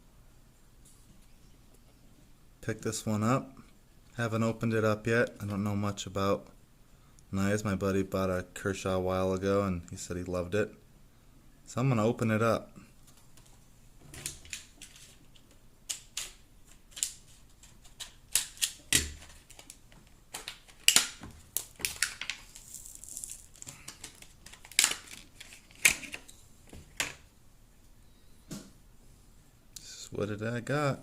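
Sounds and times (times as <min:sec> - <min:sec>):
packaging rustling: 0:13.1 - 0:27.0
packaging clicking and snapping: 0:14.2 - 0:26.3.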